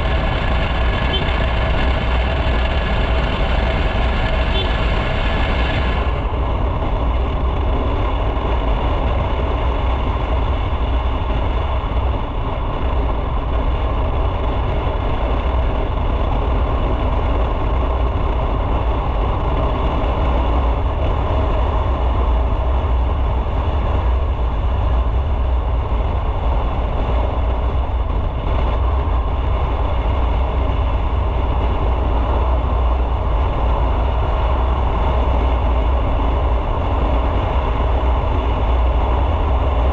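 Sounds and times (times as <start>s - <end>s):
motorcycle engine rumbling: 0.0s - 39.9s.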